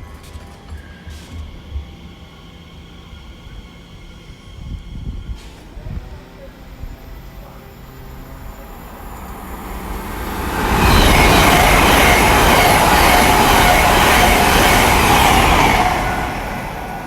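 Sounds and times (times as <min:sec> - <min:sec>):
high-speed train passing: 0:00.0 - 0:17.0
train whining tones: 0:00.0 - 0:17.0.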